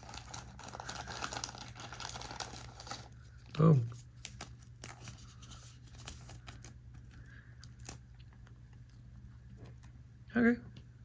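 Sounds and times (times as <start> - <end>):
trading cards rustling: 0.0 - 8.1
foil wrapper crinkling: 0.0 - 8.2
low steady hum: 0.0 - 11.0.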